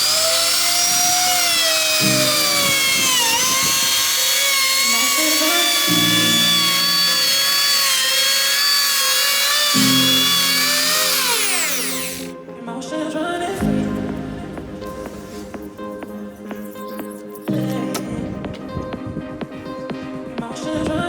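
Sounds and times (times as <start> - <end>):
router motor whining: 0.0 - 12.3.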